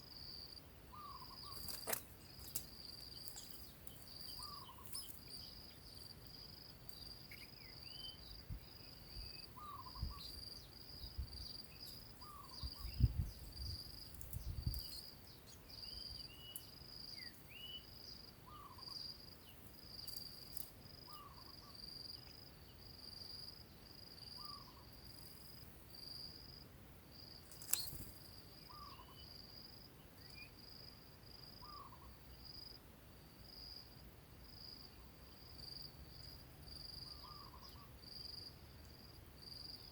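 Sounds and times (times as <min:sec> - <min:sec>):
cricket chirping: 0:00.0 - 0:39.9
sharp click: 0:27.5 - 0:28.0.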